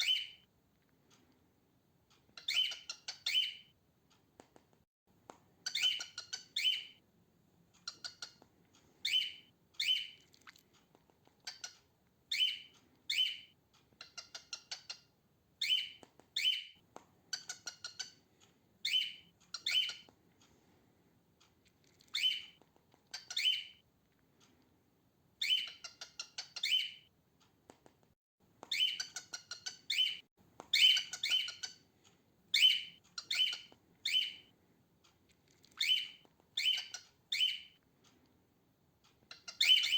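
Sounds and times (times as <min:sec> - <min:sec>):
cockatiel harsh chirps: 0:02.4 - 0:03.7, 0:05.6 - 0:07.0, 0:07.8 - 0:08.4, 0:09.0 - 0:10.2, 0:11.4 - 0:18.2, 0:18.8 - 0:20.1, 0:22.0 - 0:23.8, 0:25.4 - 0:27.1, 0:28.7 - 0:31.8, 0:32.5 - 0:34.5, 0:35.7 - 0:37.8, 0:39.3 - 0:39.9.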